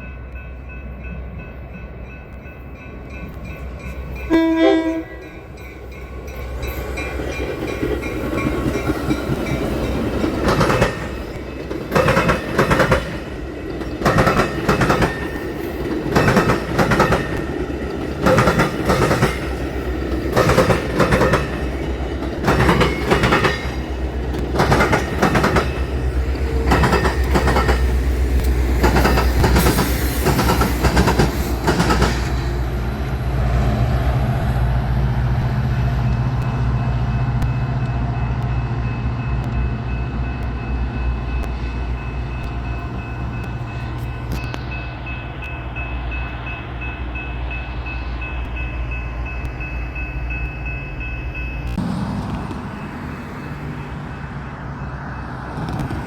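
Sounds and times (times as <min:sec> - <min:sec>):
train rumbling: 0:00.0 - 0:56.0
train wheels clacking: 0:02.2 - 0:32.7.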